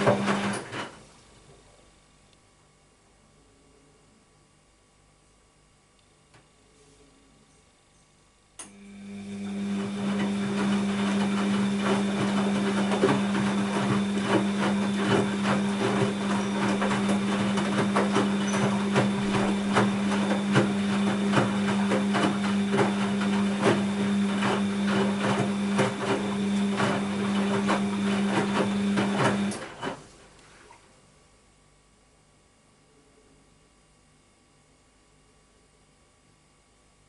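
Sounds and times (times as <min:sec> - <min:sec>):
washing machine running: 0:00.0 - 0:01.0, 0:08.6 - 0:31.0.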